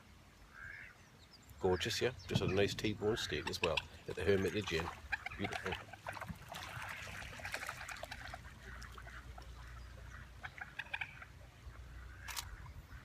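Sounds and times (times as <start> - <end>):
waterfowl calling: 0.4 - 13.0
camera shutter click: 12.3 - 12.5.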